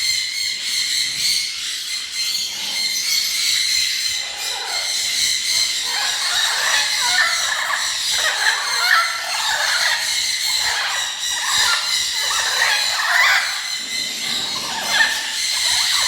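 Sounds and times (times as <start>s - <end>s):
birds chirping and chattering: 0.0s - 16.0s
low bird calls: 0.0s - 16.0s.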